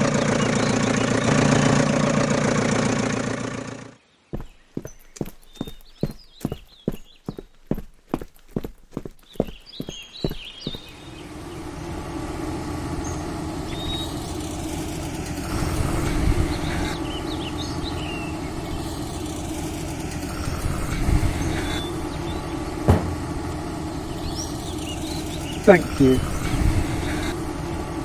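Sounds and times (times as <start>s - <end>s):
birds chirping: 0.0s - 1.9s, 4.0s - 11.9s, 12.9s - 27.4s
machine humming: 11.0s - 28.0s
sharp knock: 22.9s - 23.5s.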